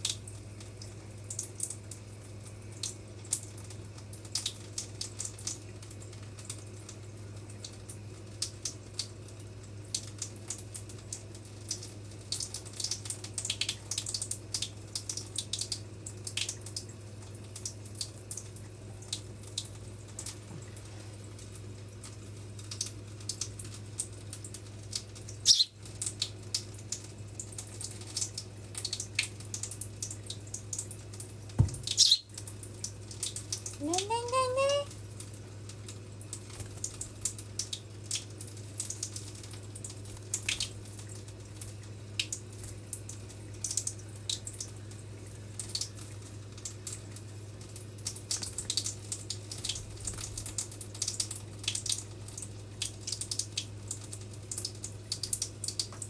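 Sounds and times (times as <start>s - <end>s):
bird clicking and ticking: 25.4s - 25.8s, 31.8s - 32.4s.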